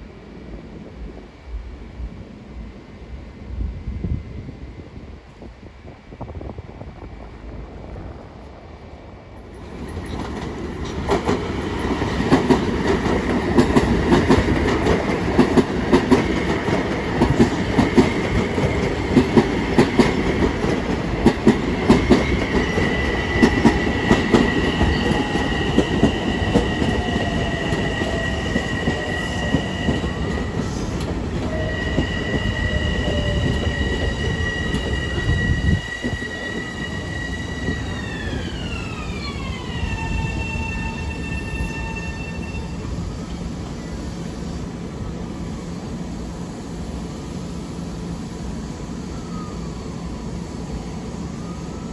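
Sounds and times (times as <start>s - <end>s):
train wheels clicking on rails: 9.4s - 41.6s.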